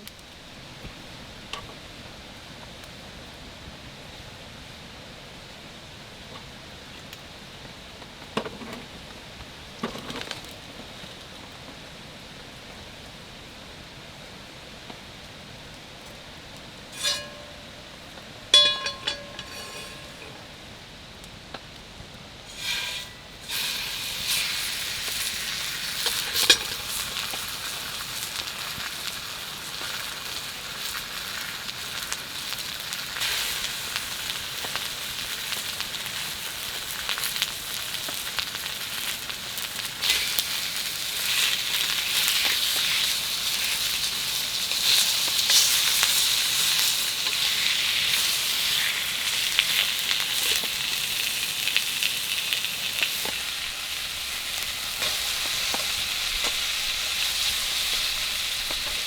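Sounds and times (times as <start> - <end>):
food sizzling in a pan: 16.8 - 20.7, 22.5 - 59.0.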